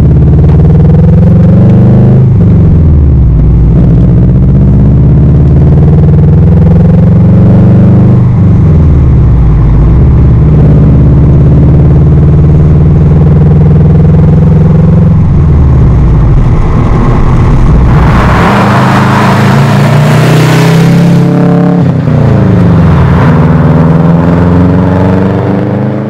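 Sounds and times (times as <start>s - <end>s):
car engine running loud: 0.0s - 26.0s
rushing noise: 14.7s - 25.2s.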